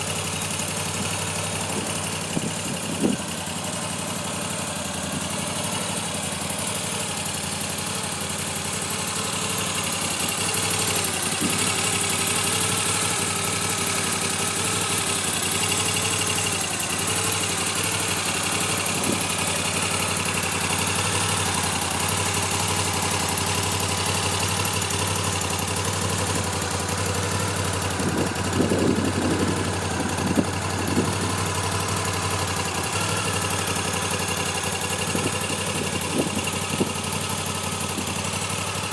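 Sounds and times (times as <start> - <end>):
motorcycle engine idling: 0.0 - 38.9
motorcycle engine revving bursts: 14.6 - 33.9.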